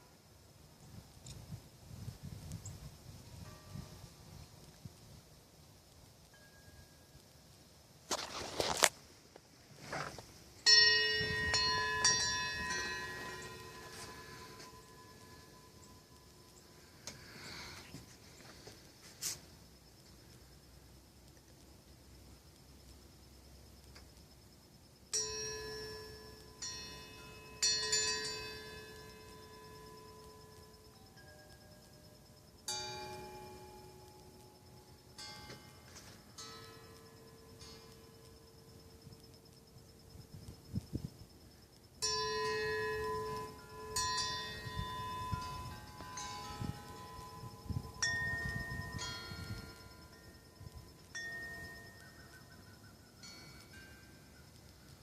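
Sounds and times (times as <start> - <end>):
metal wind chime clanging: 3.2 - 4.4, 10.6 - 18.2, 25.1 - 39.2, 42.0 - 54.9.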